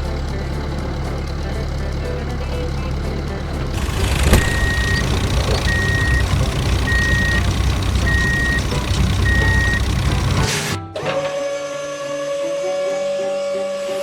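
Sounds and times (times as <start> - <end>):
low engine rumble: 0.0 - 10.5
reversing alarm beeping: 3.8 - 10.5.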